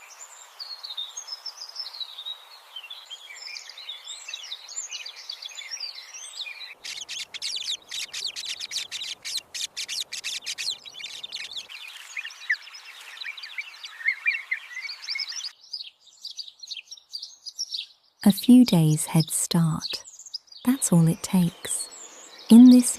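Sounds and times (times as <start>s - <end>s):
high rapid bird chirping: 6.7s - 15.5s.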